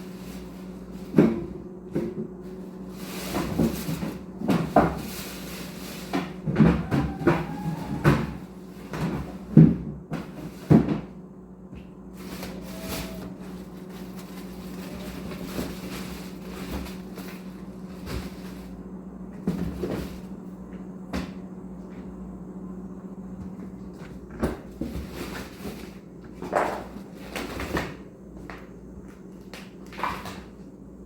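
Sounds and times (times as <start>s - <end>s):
steady low hum: 0.0s - 31.0s
kitchen knocks and clunks: 6.1s - 11.1s.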